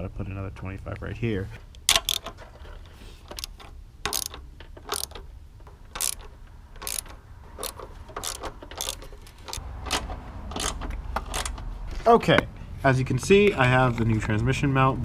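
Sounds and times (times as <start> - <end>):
ratchet wrench clicking: 1.8 - 2.4, 3.3 - 11.6.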